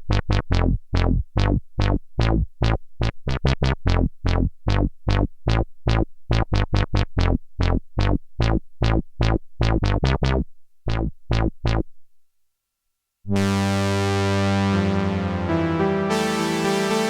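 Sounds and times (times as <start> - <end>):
synthesizer plucked notes: 13.3 - 17.0
sustained synthesizer chord: 13.4 - 17.0.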